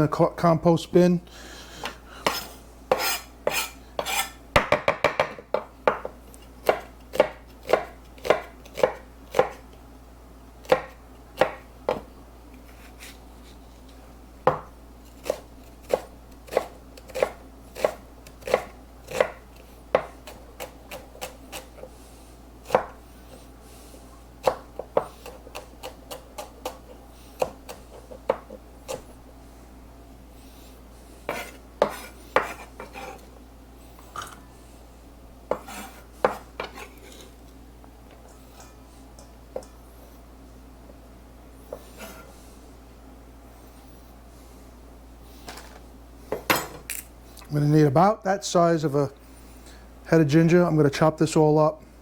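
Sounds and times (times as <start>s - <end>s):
knife chopping on cutting board: 2.2s - 9.6s, 10.6s - 12.1s, 14.5s - 21.9s, 22.6s - 23.0s, 24.4s - 29.1s, 31.3s - 33.2s, 35.5s - 37.2s.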